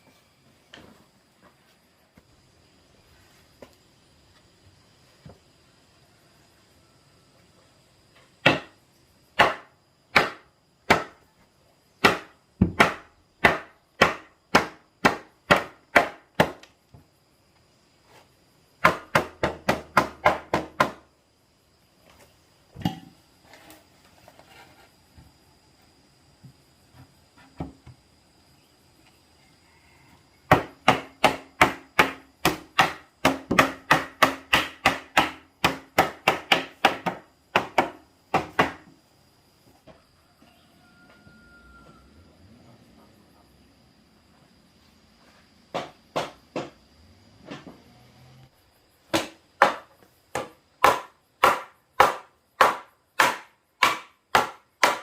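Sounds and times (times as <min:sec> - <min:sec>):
hand tool striking wood: 0:09.4 - 0:11.2, 0:12.0 - 0:16.7, 0:30.5 - 0:38.9, 0:45.7 - 0:46.8, 0:49.1 - 0:55.0.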